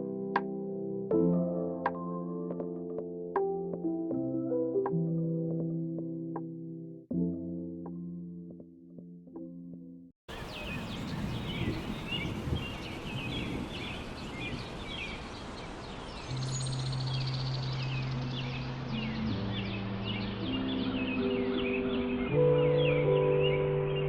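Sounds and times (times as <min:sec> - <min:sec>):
background music: 0:00.0 - 0:10.1, 0:16.4 - 0:24.0
steady outdoor hiss: 0:10.3 - 0:23.0
bird chirps: 0:10.3 - 0:24.0
low sustained synth notes: 0:16.3 - 0:24.0.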